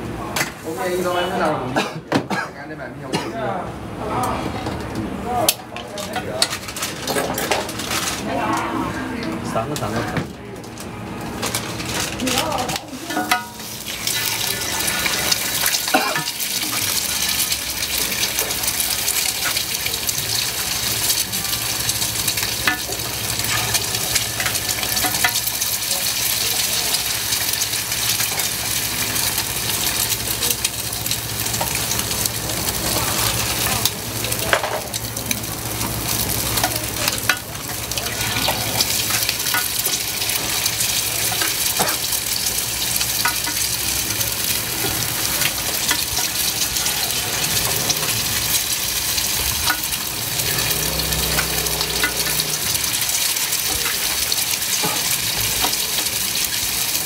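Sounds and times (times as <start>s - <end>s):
food sizzling in hot oil: 11.2s - 57.0s
cooking utensil clicks and scrapes: 11.4s - 57.0s.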